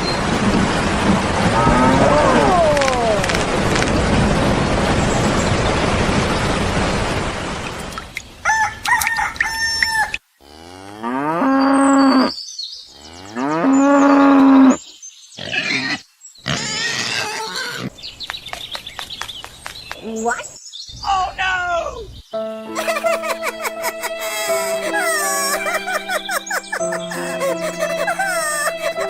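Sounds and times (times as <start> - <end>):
chicken calls: 8.4 - 10.2, 22.8 - 29.0
cow mooing: 10.4 - 12.3.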